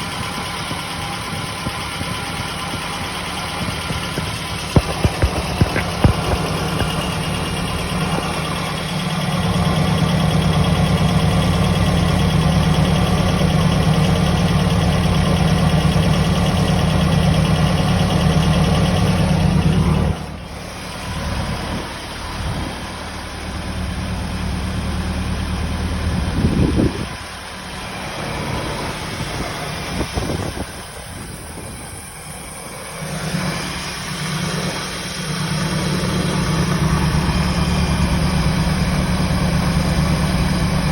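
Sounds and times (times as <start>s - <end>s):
car engine idling: 0.0s - 40.9s
clicks: 3.4s - 8.8s.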